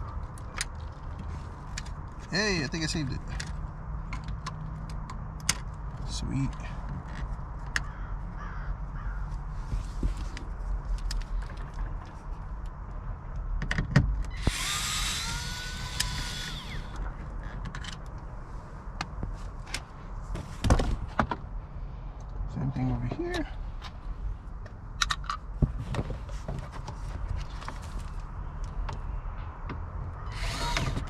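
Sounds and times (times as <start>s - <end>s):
small power tool whining: 14.3s - 17.1s, 30.3s - 31.0s.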